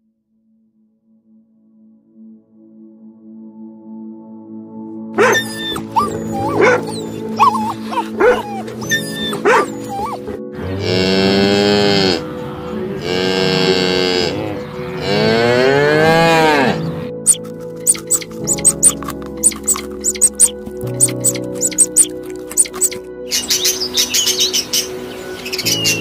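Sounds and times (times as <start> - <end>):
dog yelping: 5.2 - 10.3, 17.2 - 24.5
cow mooing: 5.2 - 12.3, 12.9 - 22.1.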